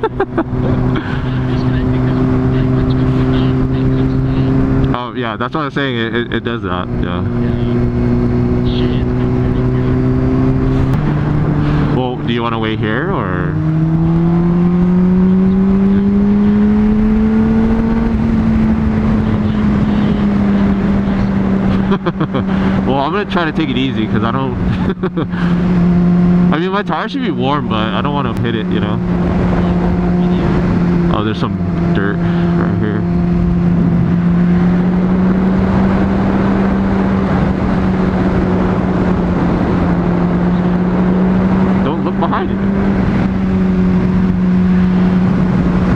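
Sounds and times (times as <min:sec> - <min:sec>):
motorcycle engine running: 0:00.0 - 0:45.9
wind rushing over microphone: 0:06.8 - 0:23.0, 0:27.6 - 0:45.9.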